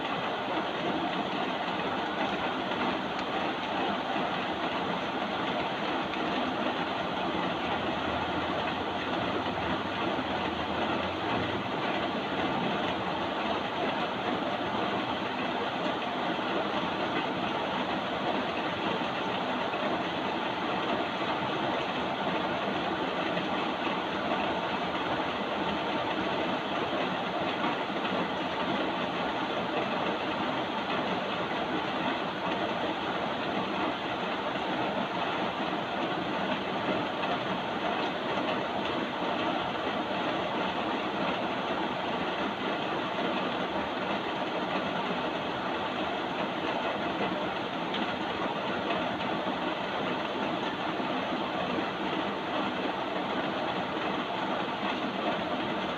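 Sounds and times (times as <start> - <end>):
steady rain hiss: 0.0 - 55.9.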